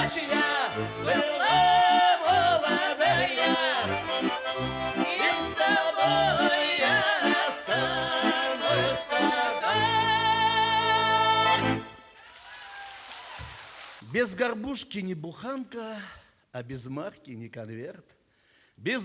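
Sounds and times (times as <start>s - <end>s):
accordion playing folk tune: 0.0s - 12.2s.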